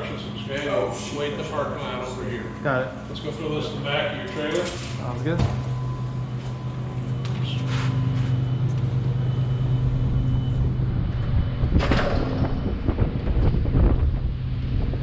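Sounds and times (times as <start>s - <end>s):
diesel engine idling: 5.2s - 11.8s.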